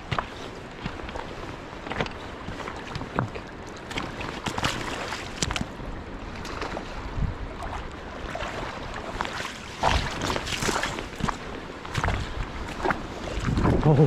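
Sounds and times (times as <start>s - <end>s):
river water: 0.0s - 14.0s
wind on the microphone: 6.4s - 9.2s, 9.8s - 14.0s.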